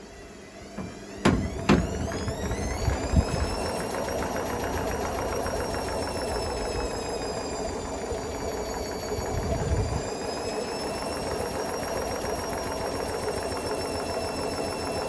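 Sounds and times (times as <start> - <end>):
washing machine running: 0.7 - 15.0
low thump: 0.8 - 3.6.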